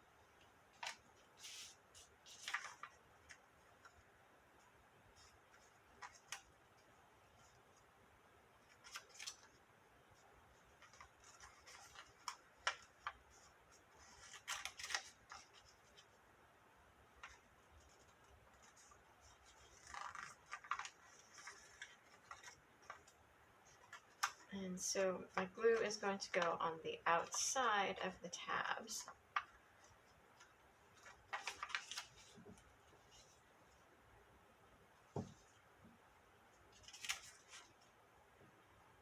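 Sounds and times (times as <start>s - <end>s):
stiff paper crinkling and tapping: 0.4s - 7.9s, 8.5s - 16.2s, 17.1s - 24.5s, 28.9s - 33.8s, 36.7s - 37.9s.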